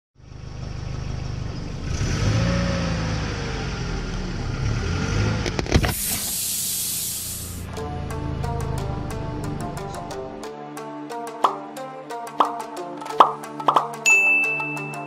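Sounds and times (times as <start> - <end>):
car engine idling: 0.2 - 1.9
loud high hiss: 5.9 - 7.7.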